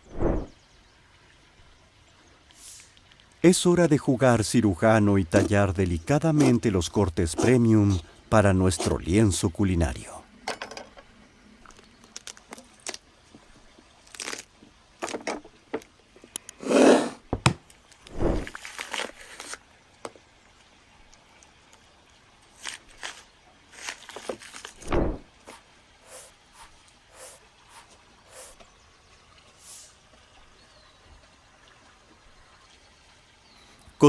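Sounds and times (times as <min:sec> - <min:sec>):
knife cutting through meat and bone: 0:07.3 - 0:07.7, 0:16.6 - 0:18.5.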